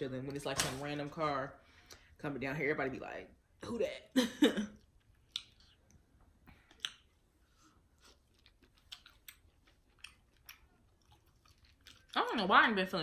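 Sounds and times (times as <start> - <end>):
faint chewing: 4.8 - 12.4.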